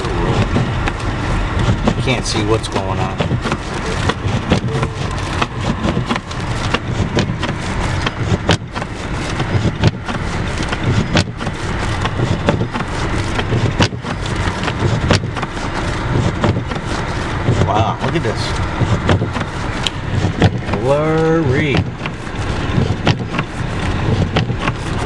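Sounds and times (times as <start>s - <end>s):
low rumble inside car: 0.0s - 25.0s
sharp clicks and knocks: 0.4s - 15.6s, 22.8s - 25.0s.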